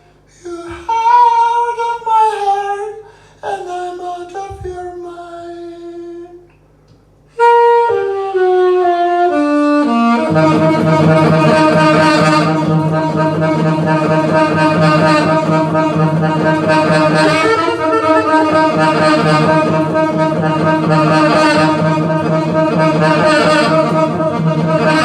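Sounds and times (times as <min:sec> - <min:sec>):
horn melody: 0:07.4 - 0:25.0
jazz band playing: 0:07.4 - 0:25.0.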